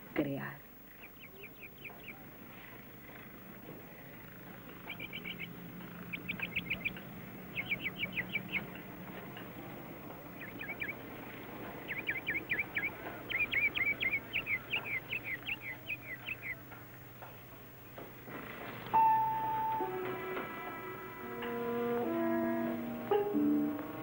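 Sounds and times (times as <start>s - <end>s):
low steady hum: 0.0s - 24.0s
bird chirping rapidly: 0.9s - 2.3s, 4.1s - 9.0s, 10.3s - 16.7s.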